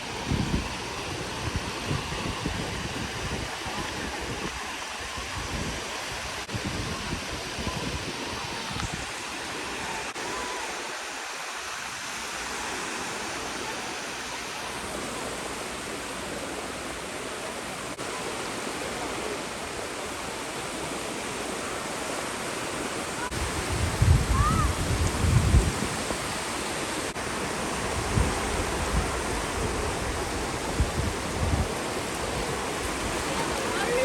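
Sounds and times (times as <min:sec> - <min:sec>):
wind buffeting microphone: 0:00.0 - 0:09.2, 0:23.3 - 0:34.0
surf on a sandy beach: 0:00.0 - 0:34.0.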